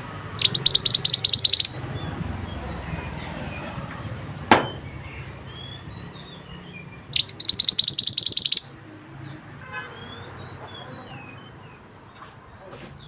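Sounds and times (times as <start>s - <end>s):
bird rolling trill: 0.4s - 1.8s, 7.2s - 8.7s
faint bird chirps: 0.4s - 1.9s, 7.1s - 8.8s.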